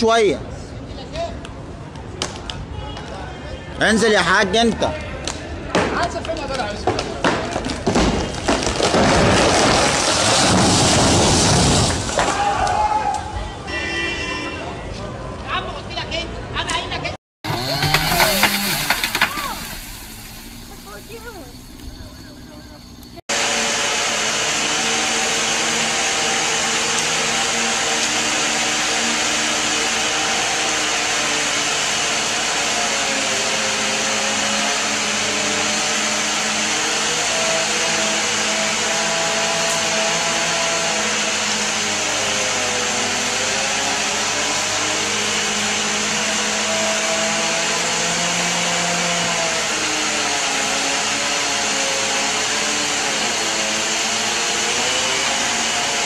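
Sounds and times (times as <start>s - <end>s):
chainsaw engine running: 17.4s - 56.0s.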